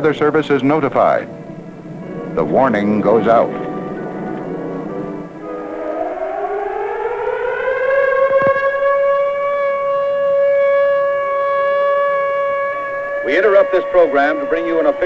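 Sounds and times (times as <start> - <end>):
warning siren wailing: 0.0 - 15.0.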